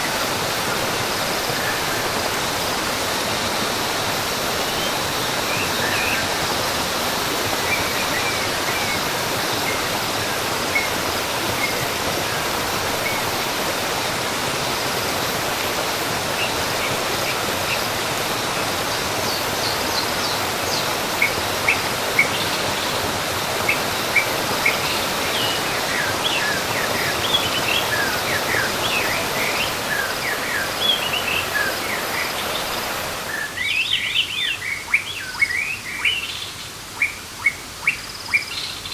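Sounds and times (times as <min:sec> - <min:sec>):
waterfall rushing: 0:00.0 - 0:34.5
birds chirping: 0:16.3 - 0:38.9.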